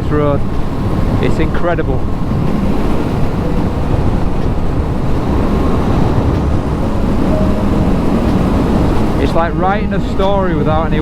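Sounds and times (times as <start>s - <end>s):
wind and road rush: 0.0s - 11.0s.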